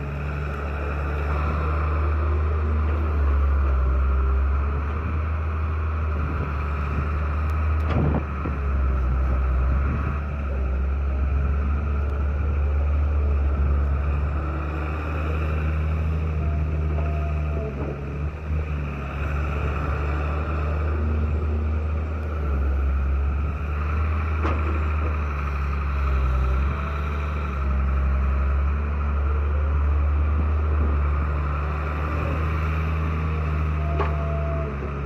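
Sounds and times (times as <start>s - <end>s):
diesel engine droning: 0.0s - 35.0s.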